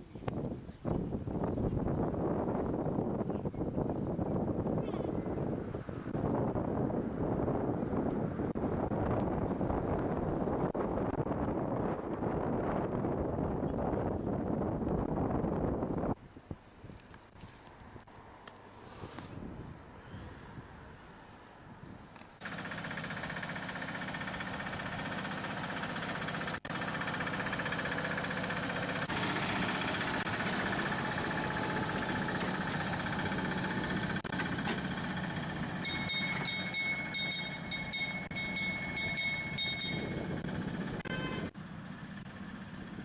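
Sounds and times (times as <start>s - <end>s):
miniature train engine running: 22.4s - 41.0s
steady high tone: 35.6s - 41.5s.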